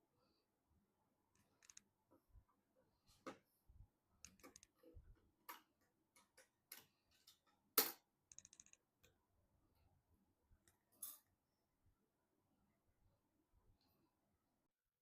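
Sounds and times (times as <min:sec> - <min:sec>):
small ticks: 0:01.3 - 0:01.9, 0:08.3 - 0:08.8
computer hardware clicks and taps: 0:04.2 - 0:09.2.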